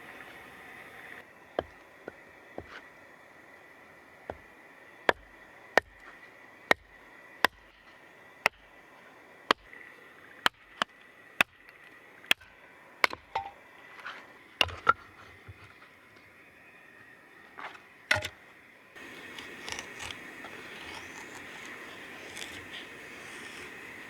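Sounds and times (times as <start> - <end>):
firewood being split: 14.6 - 15.0, 18.1 - 18.4, 19.0 - 24.0.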